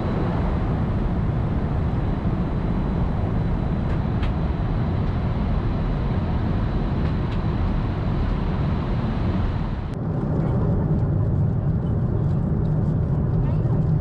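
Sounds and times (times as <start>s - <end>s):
aircraft cabin engine roar: 0.0s - 14.0s
low cabin drone: 0.0s - 14.0s.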